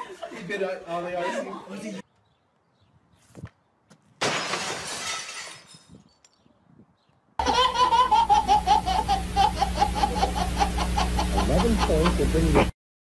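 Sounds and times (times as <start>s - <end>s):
baby laughing: 7.4s - 12.4s.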